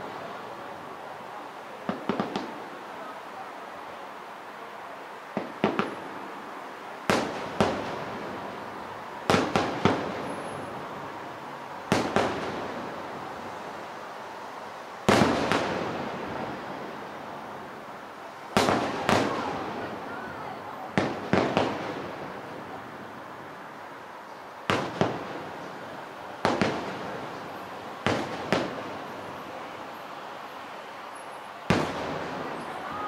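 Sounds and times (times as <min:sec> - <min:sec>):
fireworks bursting with echo: 0:00.0 - 0:03.0, 0:05.3 - 0:06.3, 0:07.0 - 0:11.2, 0:11.8 - 0:13.4, 0:15.0 - 0:17.9, 0:18.5 - 0:23.3, 0:24.6 - 0:33.0.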